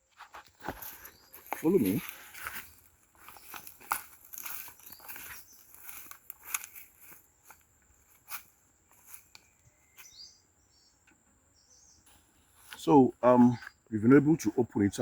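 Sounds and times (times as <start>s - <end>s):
clicks and crunches of handling: 0.6s - 7.6s
bird chirps: 4.5s - 6.1s, 9.2s - 12.4s, 13.1s - 15.0s.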